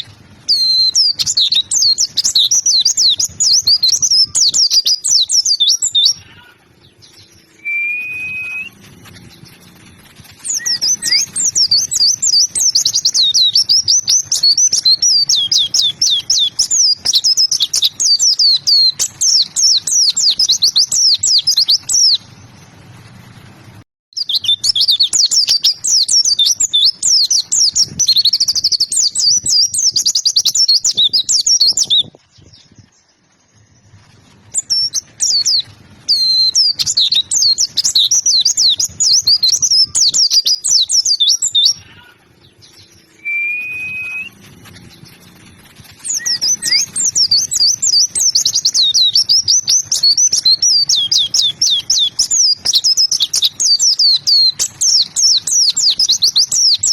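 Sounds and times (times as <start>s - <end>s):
bird twittering song: 0.0s - 23.4s, 24.2s - 56.9s
short rising whistle: 7.5s - 8.8s, 43.1s - 44.4s.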